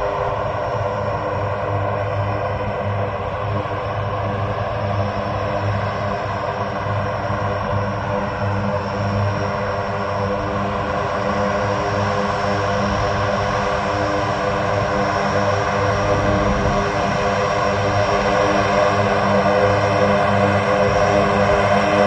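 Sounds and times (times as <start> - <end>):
aircraft engines droning: 0.0 - 22.0.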